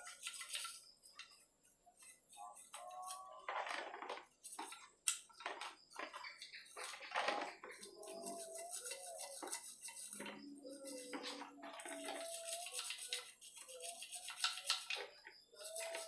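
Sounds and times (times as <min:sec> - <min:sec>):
stiff brush scrubbing metal: 0:06.7 - 0:16.0.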